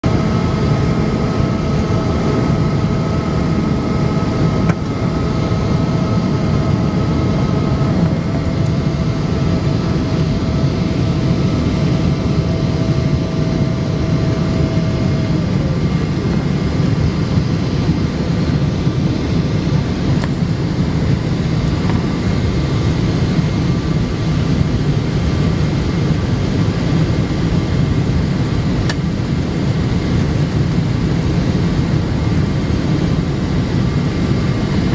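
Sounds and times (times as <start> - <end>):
airliner cabin roar: 0.0 - 34.9
thin engine whine: 0.0 - 34.9.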